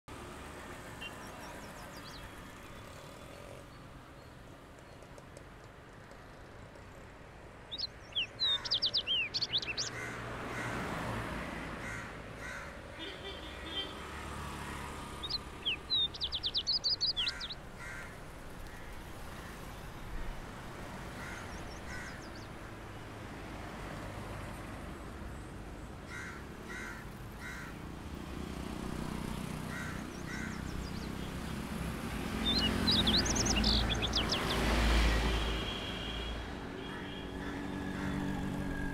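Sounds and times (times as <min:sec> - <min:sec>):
birds calling: 0:07.7 - 0:10.8, 0:11.8 - 0:20.4, 0:21.1 - 0:22.6, 0:29.5 - 0:38.9.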